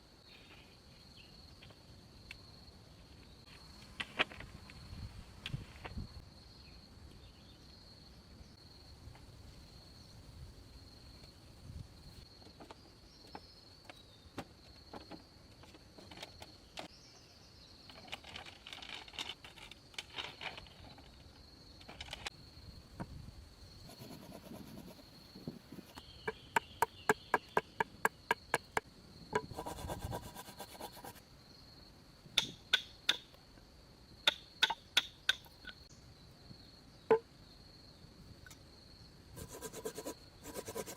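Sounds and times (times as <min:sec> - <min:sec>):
insects trilling: 0:05.9 - 0:40.9.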